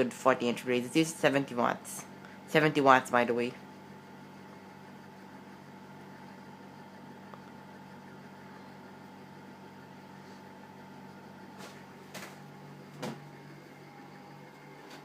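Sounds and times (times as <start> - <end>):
ceiling fan humming: 0.0 - 15.0.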